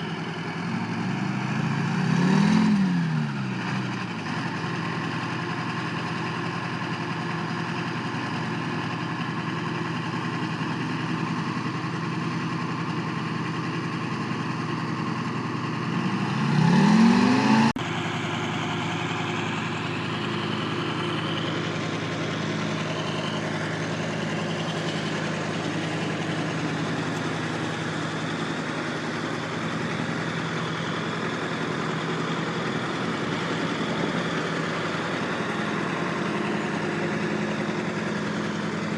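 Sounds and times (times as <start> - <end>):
engine idling and revving: 0.0 - 38.9.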